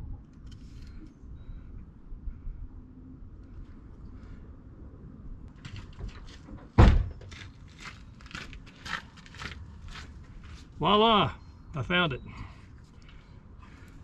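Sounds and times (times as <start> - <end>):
loud thunk: 6.8 - 7.3.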